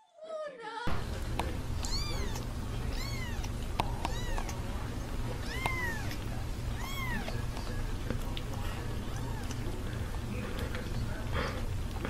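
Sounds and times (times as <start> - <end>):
steady low hum: 0.9 - 12.0
kitten mewing: 1.8 - 4.6, 5.4 - 7.4, 9.0 - 9.7.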